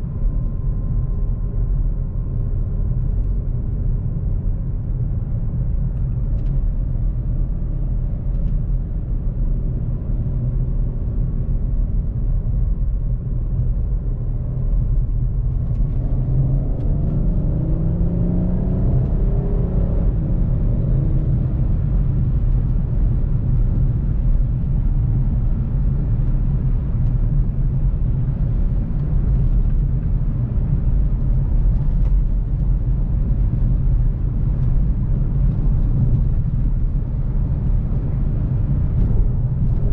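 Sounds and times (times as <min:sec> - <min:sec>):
road rumble: 0:00.0 - 0:39.9
car engine accelerating: 0:14.6 - 0:39.9.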